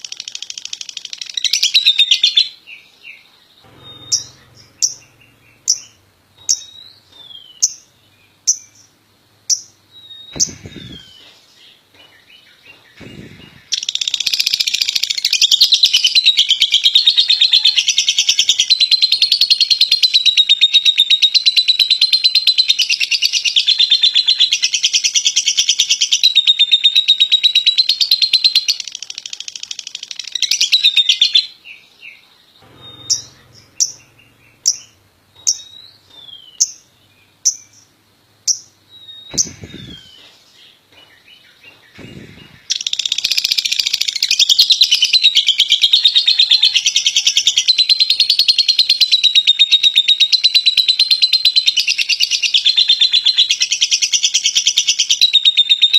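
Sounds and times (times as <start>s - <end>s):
bird sharp chirps: 0.0s - 11.8s, 12.7s - 24.6s, 32.6s - 40.8s, 41.4s - 50.4s
lovebird chattering trill: 10.3s - 11.2s, 39.3s - 40.2s.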